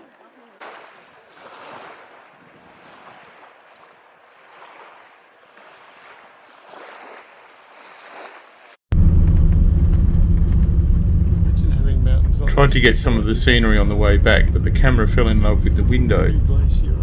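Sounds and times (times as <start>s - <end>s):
small waves washing onto shore: 0.0s - 8.9s
wind: 0.0s - 17.0s
low vehicle engine rumble: 8.9s - 17.0s.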